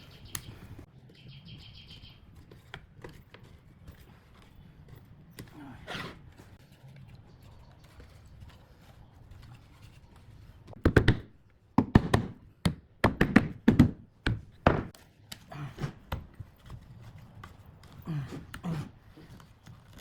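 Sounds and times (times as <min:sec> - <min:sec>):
hard knocks on wood: 0:10.8 - 0:14.9.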